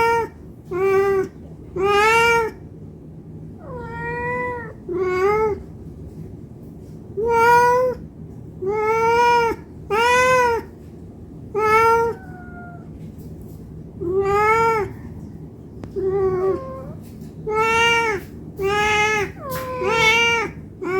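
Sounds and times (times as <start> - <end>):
cat meowing: 0.0 - 2.6, 3.6 - 5.6, 7.2 - 8.0, 8.6 - 10.8, 11.6 - 13.0, 14.0 - 15.1, 16.0 - 20.9.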